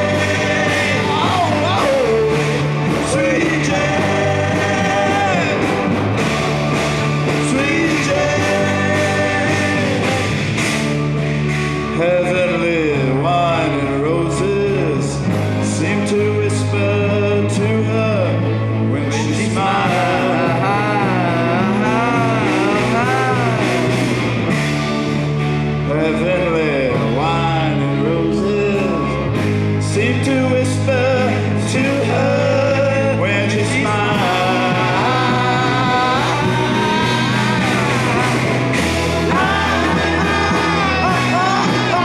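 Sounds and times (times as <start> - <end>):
drum kits playing a beat: 0.0 - 12.6, 19.1 - 25.8, 29.4 - 42.0
bass guitar: 0.0 - 42.0
electric guitars: 0.0 - 42.0
organ: 0.0 - 42.0.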